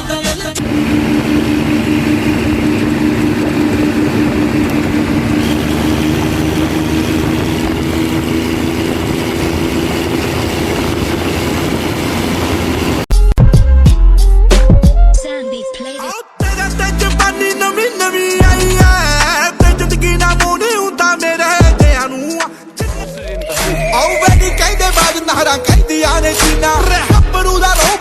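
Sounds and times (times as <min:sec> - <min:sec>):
tractor engine running: 0:00.6 - 0:13.1.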